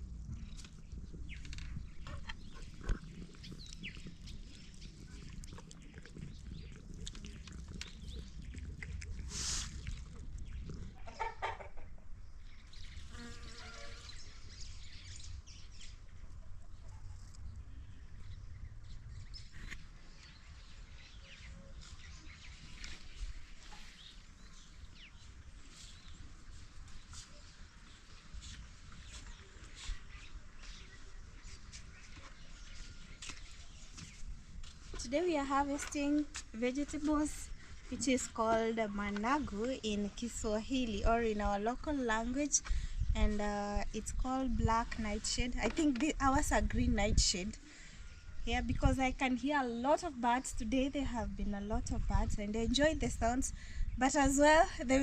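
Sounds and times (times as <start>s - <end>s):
birds chirping and calling: 0.4s - 6.7s.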